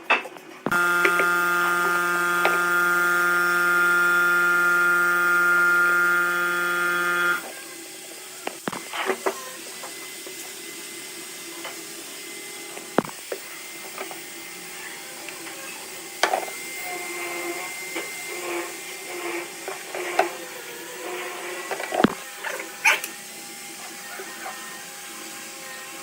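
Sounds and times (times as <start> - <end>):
electric machine hum: 0.7 - 7.5, 13.0 - 13.3.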